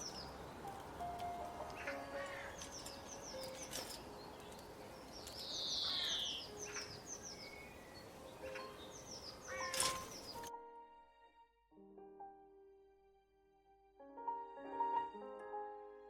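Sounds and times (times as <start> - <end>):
birds chirping: 0.0 - 10.5.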